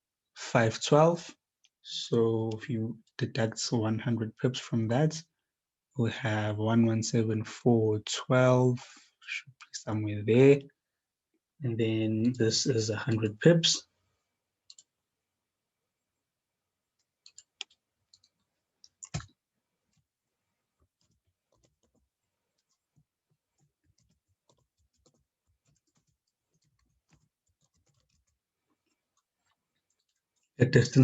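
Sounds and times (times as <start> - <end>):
computer mouse clicks: 14.7 - 14.9, 17.0 - 19.3.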